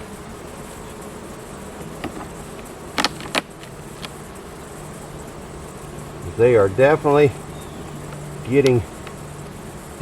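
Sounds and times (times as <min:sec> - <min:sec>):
honeybees buzzing: 0:00.0 - 0:10.0
hive tool clicks: 0:01.8 - 0:04.2, 0:08.0 - 0:09.6.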